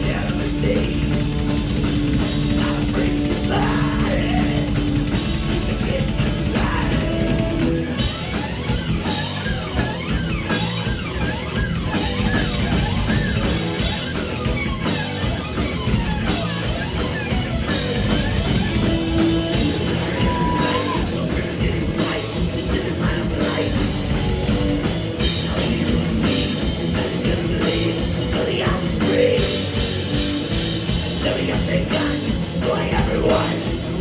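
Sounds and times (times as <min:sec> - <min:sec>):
drums and cymbals: 0:00.0 - 0:34.0
heavy rock band playing: 0:00.0 - 0:34.0.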